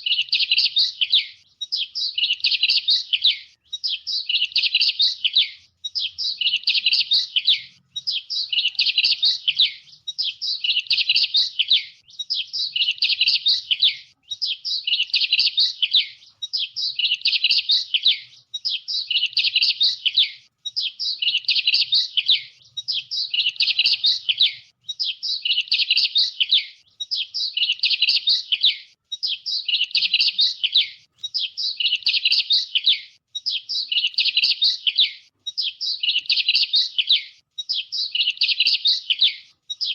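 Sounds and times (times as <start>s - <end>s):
songbird chirping and twittering: 0.0s - 39.9s.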